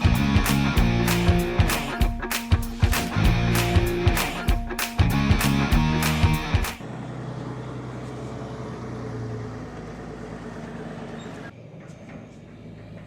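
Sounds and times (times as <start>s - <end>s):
vehicle engine running: 5.2s - 13.0s.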